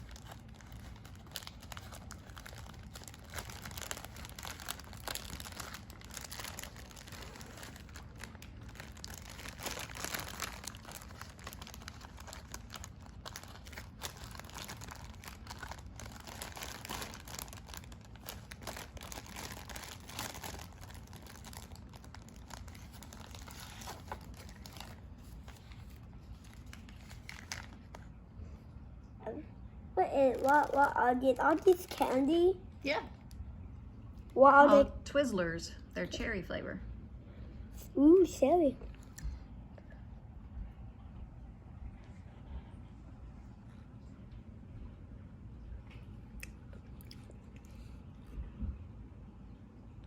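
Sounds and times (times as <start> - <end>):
wrapping crinkling and tearing: 0.0 - 28.2, 30.2 - 32.4.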